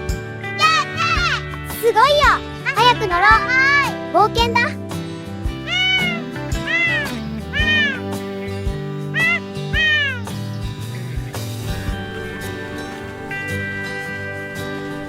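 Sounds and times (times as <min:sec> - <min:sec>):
kitten meowing: 0:05.7 - 0:10.3.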